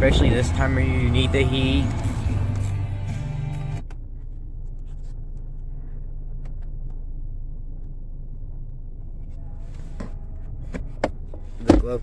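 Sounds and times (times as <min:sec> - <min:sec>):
car radio music: 0:00.0 - 0:04.0
car cabin engine hum: 0:00.0 - 0:12.0.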